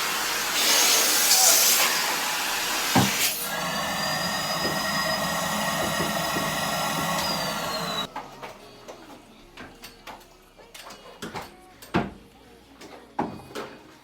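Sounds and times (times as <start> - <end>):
electric motor whining: 2.9 - 8.1.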